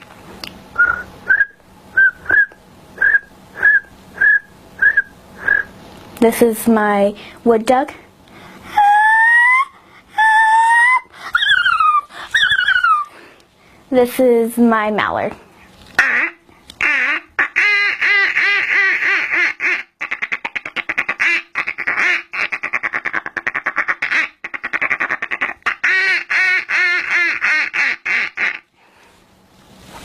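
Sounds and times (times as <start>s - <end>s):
fast chattering quacks: 16.0s - 28.7s
imitated duck quacks: 16.0s - 28.7s.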